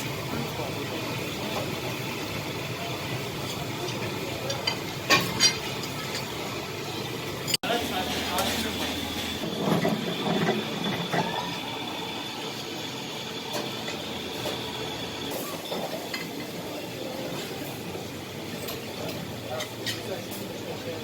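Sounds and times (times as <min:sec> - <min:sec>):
kitchen noise: 0:00.0 - 0:21.0
metal utensils clinking: 0:03.4 - 0:06.4, 0:18.6 - 0:20.5.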